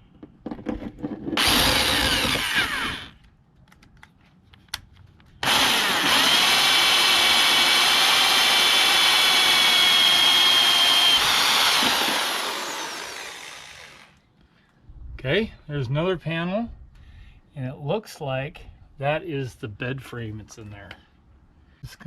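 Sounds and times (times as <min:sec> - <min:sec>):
power drill whining: 0:01.4 - 0:03.2, 0:05.4 - 0:14.2.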